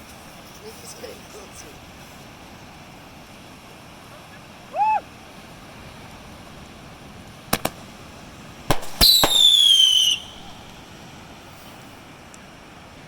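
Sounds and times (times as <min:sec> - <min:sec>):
firework cracks: 0:07.5 - 0:08.0, 0:08.7 - 0:11.0
whistling firework: 0:08.7 - 0:10.8.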